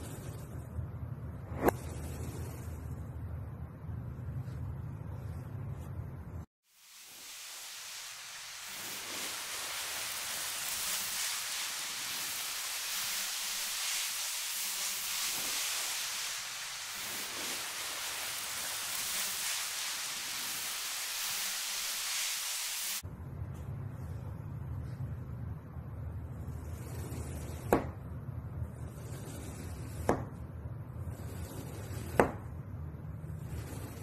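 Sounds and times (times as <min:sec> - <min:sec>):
steady hiss: 0:06.6 - 0:23.0.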